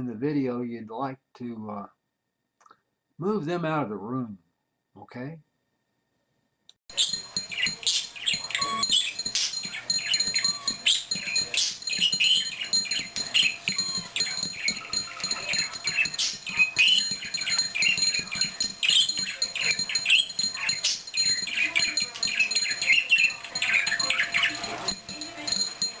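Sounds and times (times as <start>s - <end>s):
knocks against a bell: 6.9s - 26.0s
parakeet chattering and warbling: 6.9s - 26.0s.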